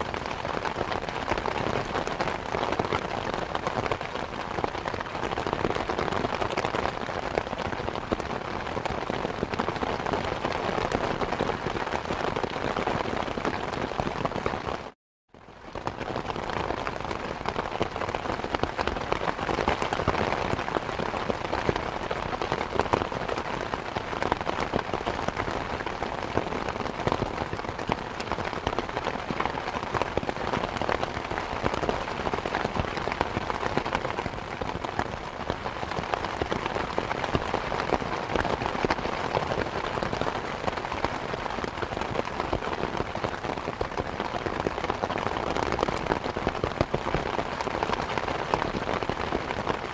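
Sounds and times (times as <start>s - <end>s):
steady rain falling: 0.0s - 49.9s.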